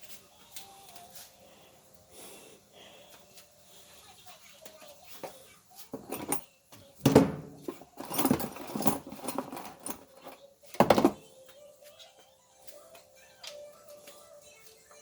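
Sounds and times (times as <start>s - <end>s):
metal clatter: 6.0s - 6.4s, 7.0s - 11.2s
metal tools clanking: 6.0s - 6.4s, 7.0s - 11.2s.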